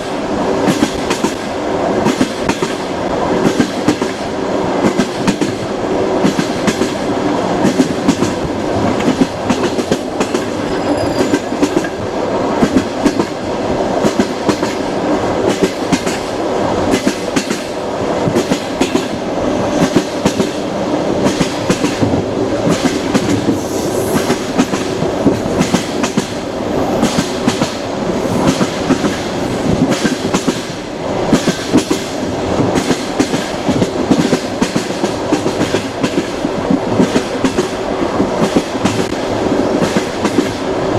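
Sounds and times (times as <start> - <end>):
train rumbling along track: 0.0 - 40.9
wheels clacking over rail joints: 7.6 - 13.4.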